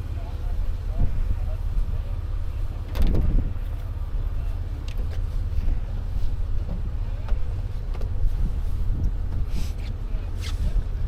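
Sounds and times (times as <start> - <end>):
faint voices: 0.0 - 8.3
vehicle engine idling: 0.0 - 11.0
wind buffeting microphone: 0.6 - 11.0.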